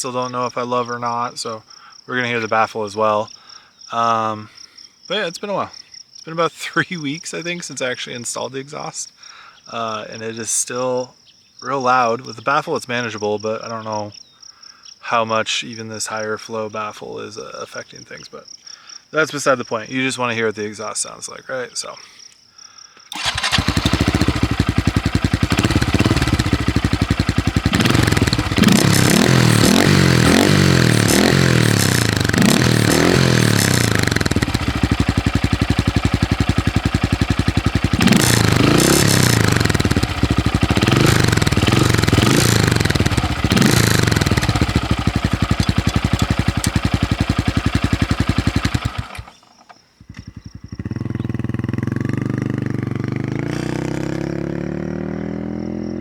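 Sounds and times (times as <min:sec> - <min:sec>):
motorcycle engine idling: 0:23.1 - 0:56.0
motorcycle throttle revs: 0:23.1 - 0:56.0
quieter engine running: 0:23.1 - 0:56.0.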